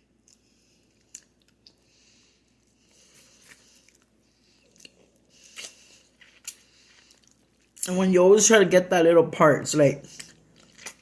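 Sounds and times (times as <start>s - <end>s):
chewing and mouth smacks: 0.0s - 8.0s, 10.1s - 11.0s.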